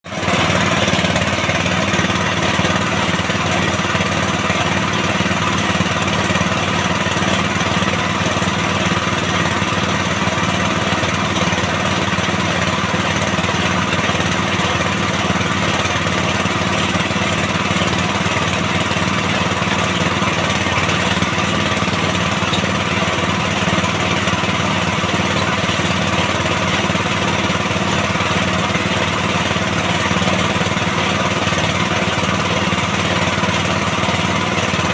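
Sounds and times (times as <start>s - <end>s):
drilling rig engine running: 0.0s - 34.9s.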